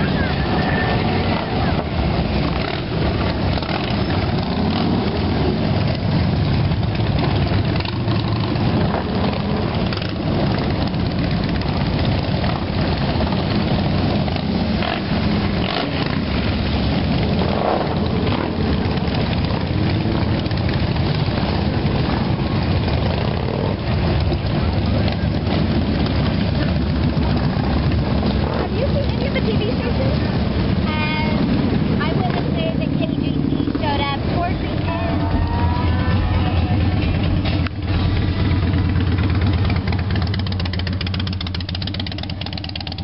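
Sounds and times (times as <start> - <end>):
motorcycle engines idling: 0.0 - 43.0.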